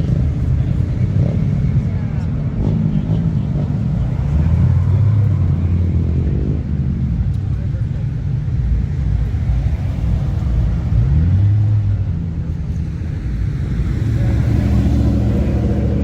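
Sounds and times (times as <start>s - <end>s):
car engines rolling past: 0.0s - 16.0s
engine accelerating: 13.6s - 16.0s.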